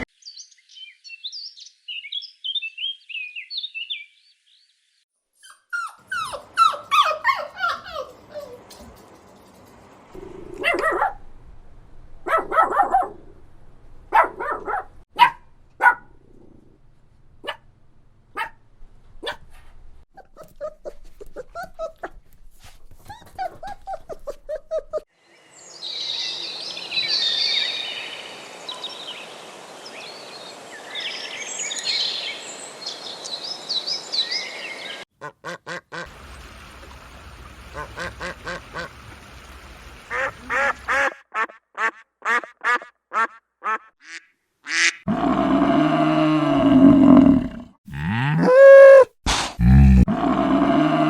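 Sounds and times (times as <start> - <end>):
dog yipping: 5.4 - 8.8, 10.6 - 11.2, 12.3 - 13.2, 14.1 - 16.0, 18.4 - 18.6, 23.0 - 25.1
dog barking: 10.5 - 11.2, 12.2 - 13.2, 14.1 - 16.1, 17.4 - 17.6, 18.3 - 18.6, 19.2 - 19.6.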